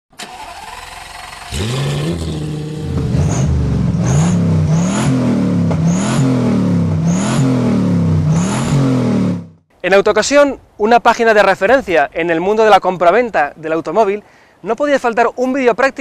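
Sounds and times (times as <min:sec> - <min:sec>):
car engine revving: 0:00.3 - 0:09.6.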